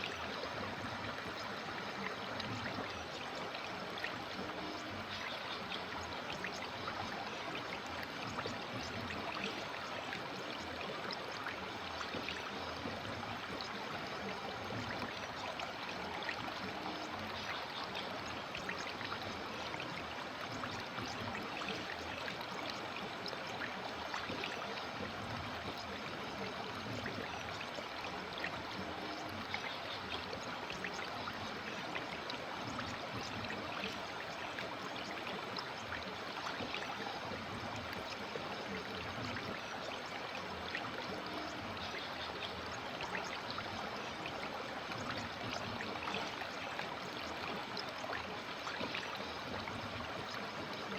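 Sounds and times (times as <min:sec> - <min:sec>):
river water babbling: 0:00.0 - 0:50.9.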